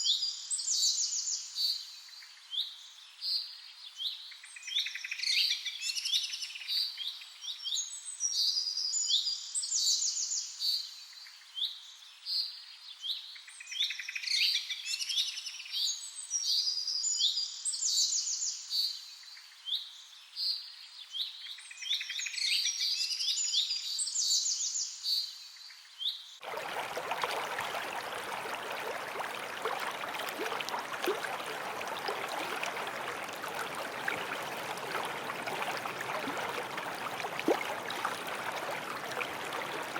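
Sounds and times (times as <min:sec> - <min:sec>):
running creek rushing: 0:26.4 - 0:39.9.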